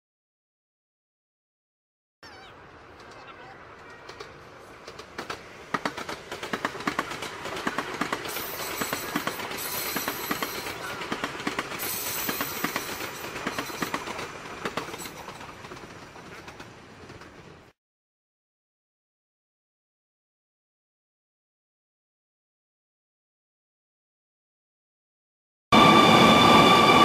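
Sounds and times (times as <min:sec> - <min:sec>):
train rushing past: 0:02.4 - 0:17.7, 0:25.7 - 0:27.0
wheels clattering over rail joints: 0:02.7 - 0:17.7.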